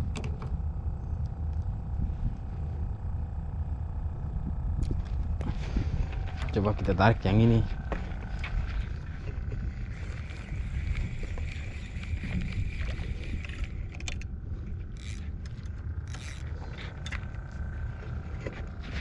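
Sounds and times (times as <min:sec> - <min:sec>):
boat engine rumbling: 0:00.0 - 0:19.0
light clicks and rattles: 0:07.9 - 0:19.0.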